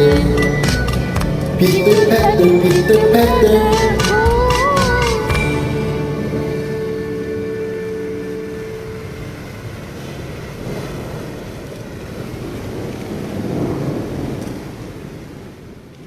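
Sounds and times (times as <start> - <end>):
held music note: 0.0 - 10.0
rain: 0.0 - 16.0
thunder rumbling: 0.0 - 16.0.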